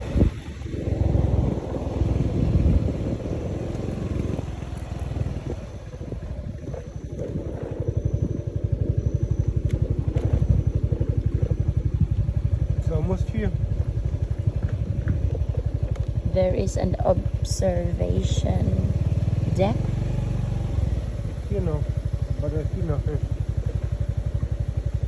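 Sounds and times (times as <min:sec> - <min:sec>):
motorcycle engine rumbling: 0:00.0 - 0:25.0.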